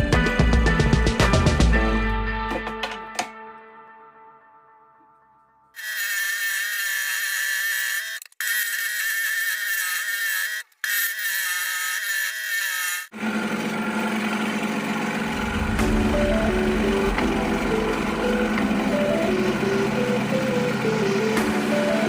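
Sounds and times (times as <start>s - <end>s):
lower-pitched power tool: 5.8s - 22.0s
small power tool whining on wood: 5.8s - 22.0s.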